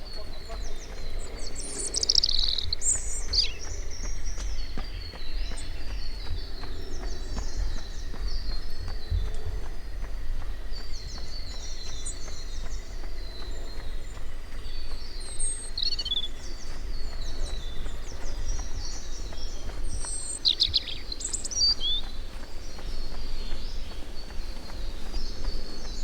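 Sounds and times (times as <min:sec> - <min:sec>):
birds chirping and trilling: 0:00.0 - 0:26.0
steady low rumble: 0:00.0 - 0:26.0.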